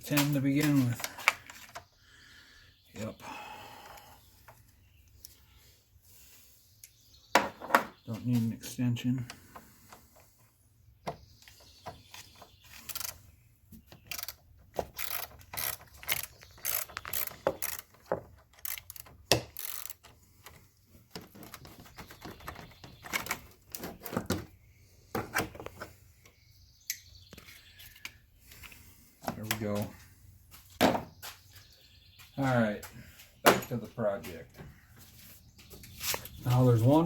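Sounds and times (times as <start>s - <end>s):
socket ratchet clicking: 14.1s - 20.1s.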